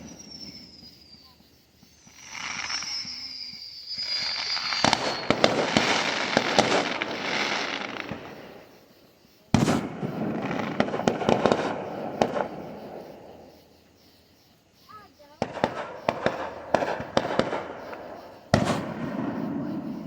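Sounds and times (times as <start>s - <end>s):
firework whistle falling in pitch: 0.0s - 1.2s, 2.3s - 5.4s
fireworks crackling: 0.0s - 20.0s
firework bang: 4.1s - 8.7s, 9.5s - 13.4s, 15.4s - 20.0s.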